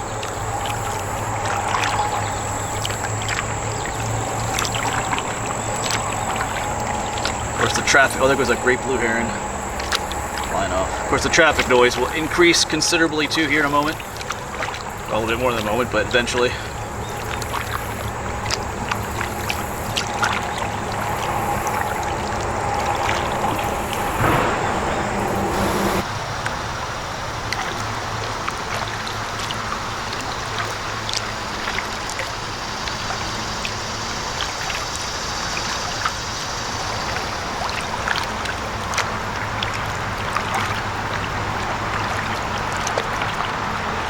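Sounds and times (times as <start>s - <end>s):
low steady hum: 0.0s - 26.1s
steady hiss: 0.0s - 26.1s
steady low rumble: 0.0s - 26.1s
water trickling and splashing: 0.0s - 44.0s.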